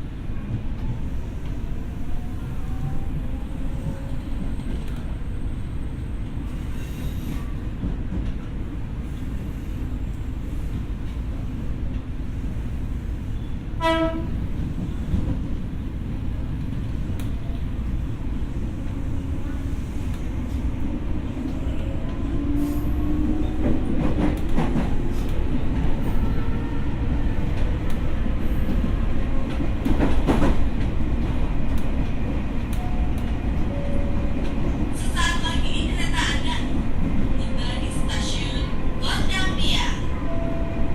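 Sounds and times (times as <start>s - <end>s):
train wheels rumbling on track: 0.0s - 40.9s
train horn blast: 13.8s - 14.4s.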